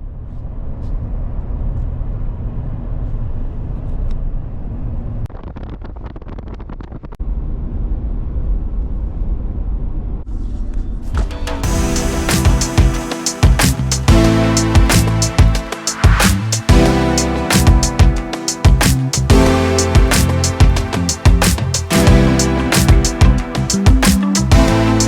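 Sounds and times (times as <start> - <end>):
vehicle road and engine rumble: 0.0 - 5.3.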